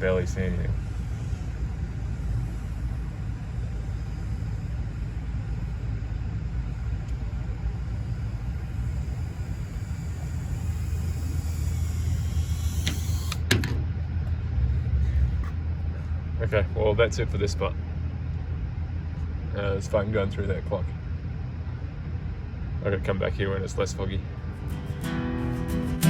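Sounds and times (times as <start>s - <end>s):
drone motors whining: 0.0s - 16.3s
steady low rumble: 0.0s - 26.0s.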